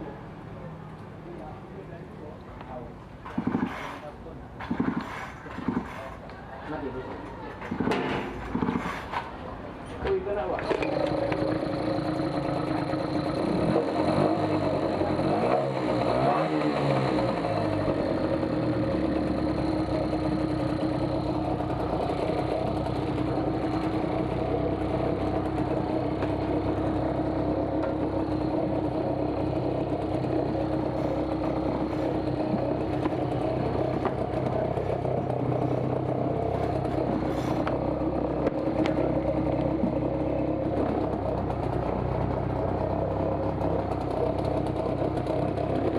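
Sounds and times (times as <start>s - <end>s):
outboard motor running: 10.6s - 45.9s.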